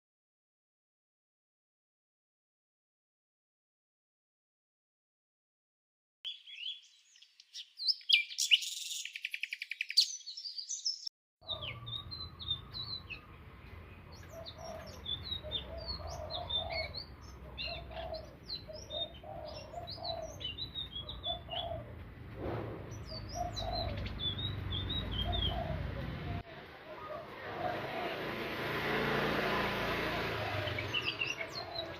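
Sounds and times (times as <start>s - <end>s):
bird chirps and trills: 6.3s - 22.0s, 22.8s - 31.9s.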